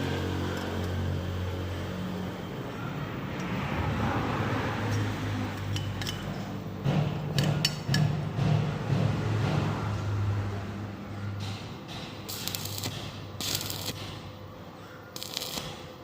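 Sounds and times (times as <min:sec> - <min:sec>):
engine running: 0:08.0 - 0:16.0.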